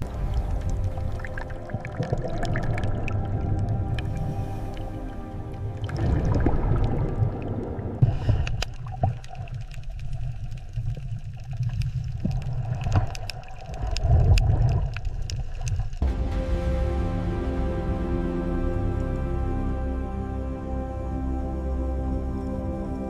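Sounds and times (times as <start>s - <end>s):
water gurgling: 0.0s - 16.1s
music with held tones: 0.1s - 7.7s, 16.0s - 23.0s
sharp clicks and crackles: 8.0s - 16.0s.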